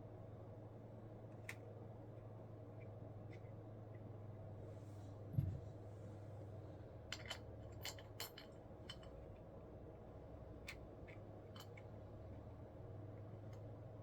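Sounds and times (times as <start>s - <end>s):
steady low hum: 0.0s - 14.0s
dull thump: 5.3s - 5.6s
light metallic clicks and clinks: 7.1s - 9.2s.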